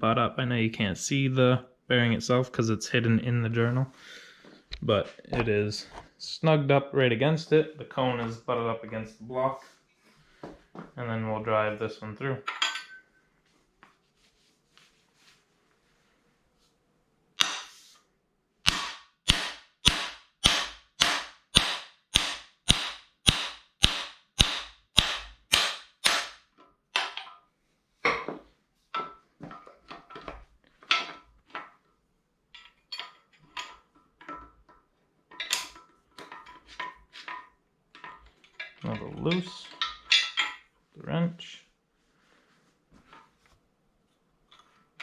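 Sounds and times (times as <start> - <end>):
hammer striking metal tool: 17.4 - 17.8, 18.7 - 26.4.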